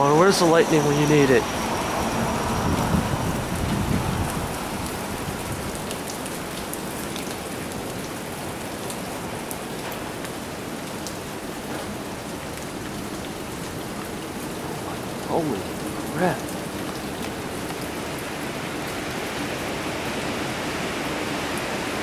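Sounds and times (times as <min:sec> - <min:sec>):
steady rain: 0:00.0 - 0:22.0
low thunder rumble: 0:01.4 - 0:05.8.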